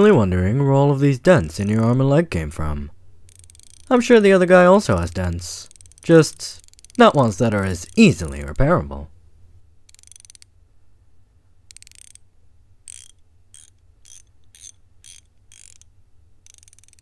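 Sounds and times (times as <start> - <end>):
faint low hum: 0.0 - 17.0
ratchet spanner ratcheting: 3.3 - 3.9, 5.6 - 8.1, 9.9 - 10.5, 11.7 - 12.2, 12.8 - 17.0.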